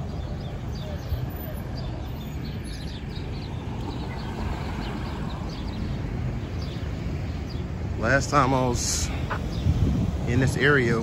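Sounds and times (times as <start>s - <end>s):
small birds chirping: 0.0s - 11.0s
street noise: 0.0s - 11.0s
wind rumble: 8.6s - 11.0s.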